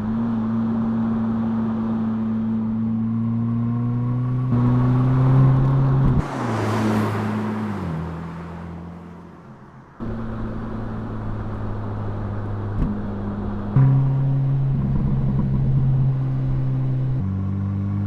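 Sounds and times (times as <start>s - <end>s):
car engine revving: 0.0s - 18.0s
rushing noise: 6.1s - 9.8s.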